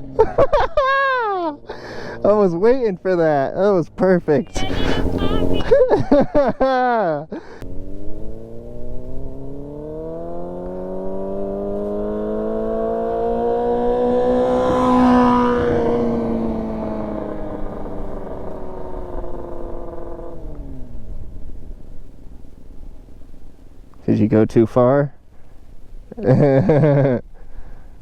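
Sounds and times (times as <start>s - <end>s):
motorcycle passing by: 1.3s - 6.0s, 7.6s - 22.1s.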